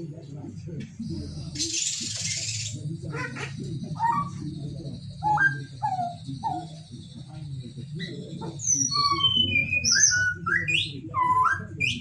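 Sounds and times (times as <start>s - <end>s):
steady low hum: 0.0s - 9.2s
bird whistling: 5.2s - 6.8s, 8.0s - 12.0s.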